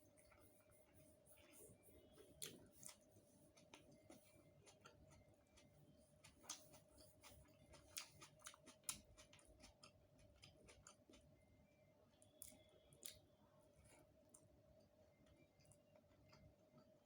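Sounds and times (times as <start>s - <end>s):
faint steady hum: 0.0s - 17.0s
wet chewing clicks and smacks: 2.2s - 11.4s, 12.2s - 13.2s, 13.8s - 17.0s.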